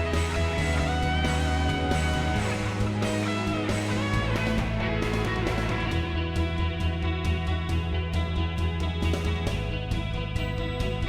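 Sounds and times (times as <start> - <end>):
guitar background music: 0.0 - 11.0.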